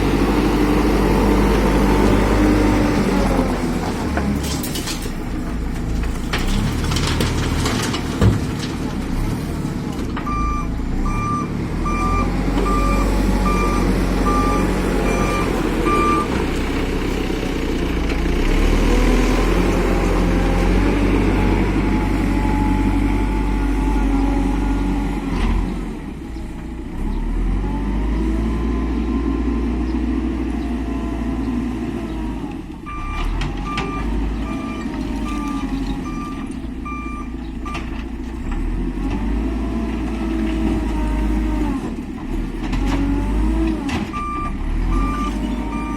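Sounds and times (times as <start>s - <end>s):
diesel construction machinery: 0.0s - 45.9s
reversing alarm beeping: 10.3s - 16.4s, 44.1s - 45.9s.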